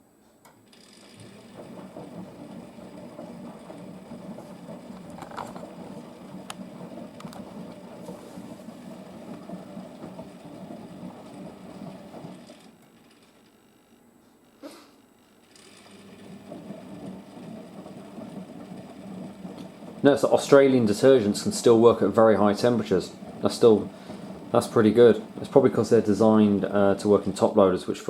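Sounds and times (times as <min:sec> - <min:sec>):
washing machine drum tumbling: 0:01.0 - 0:12.6, 0:15.9 - 0:28.0.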